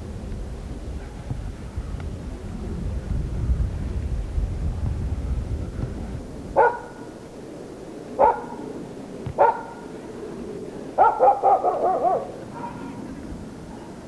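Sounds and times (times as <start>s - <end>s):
wind rumble on microphone: 0.0s - 14.0s
dog barking: 6.6s - 7.1s, 8.2s - 8.7s, 9.4s - 9.9s, 11.0s - 13.0s.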